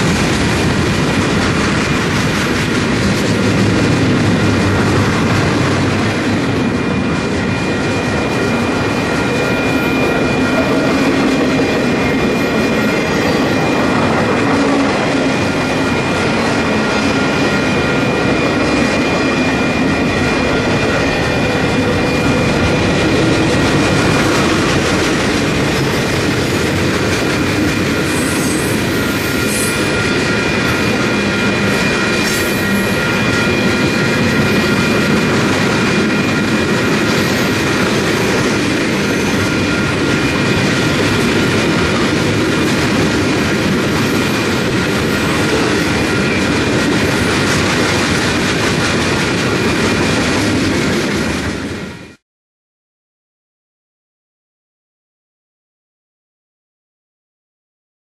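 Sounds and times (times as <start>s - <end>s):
train wheels clattering: 0.0s - 51.7s
train rumble: 0.0s - 52.2s
high-pitched wheel squeal: 27.9s - 35.0s.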